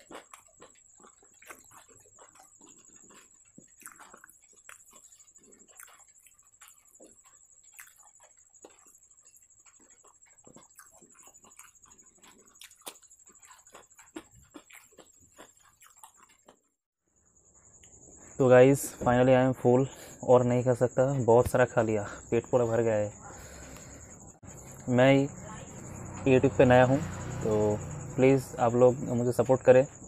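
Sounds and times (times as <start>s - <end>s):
wet mouth clicks and lip smacks: 0.0s - 16.6s
chewing: 0.0s - 16.8s, 22.6s - 24.9s.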